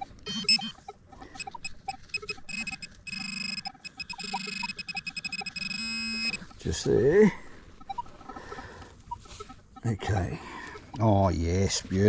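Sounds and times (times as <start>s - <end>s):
metal detector beeping: 0.0s - 7.2s.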